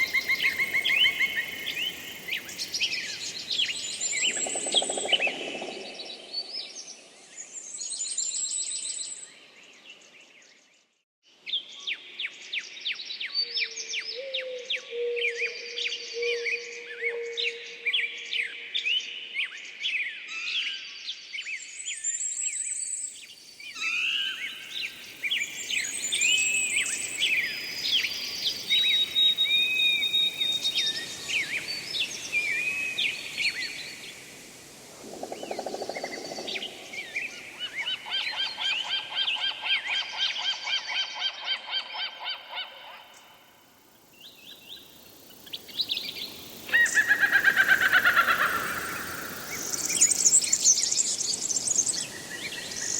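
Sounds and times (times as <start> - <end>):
birds singing and calling: 0.0 - 6.9, 21.4 - 34.6, 44.2 - 52.9.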